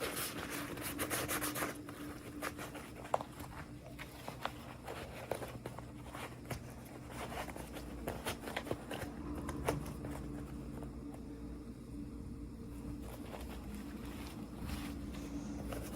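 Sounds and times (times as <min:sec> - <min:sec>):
packaging rustling: 0:00.0 - 0:11.0, 0:12.8 - 0:15.9
steady low hum: 0:00.0 - 0:15.9.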